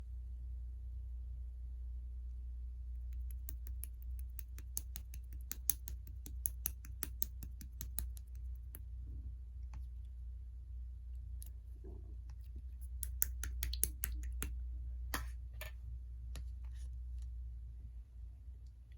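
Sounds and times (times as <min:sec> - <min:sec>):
low steady hum: 0:00.0 - 0:18.9
slime clicking and popping: 0:03.1 - 0:08.4, 0:12.8 - 0:14.5.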